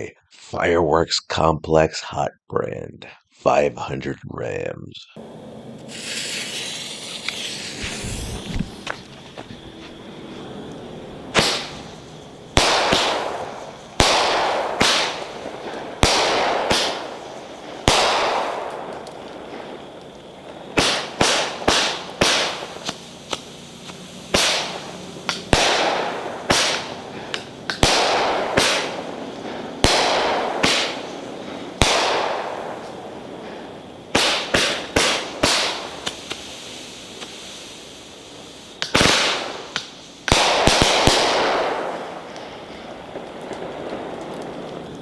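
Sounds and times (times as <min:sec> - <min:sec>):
firework cake bangs: 0:10.9 - 0:44.9.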